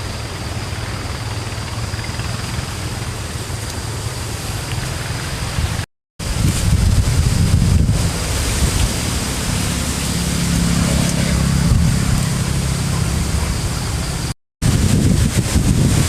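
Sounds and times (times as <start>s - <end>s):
wind buffeting microphone: 5.5s - 9.9s, 10.7s - 16.0s.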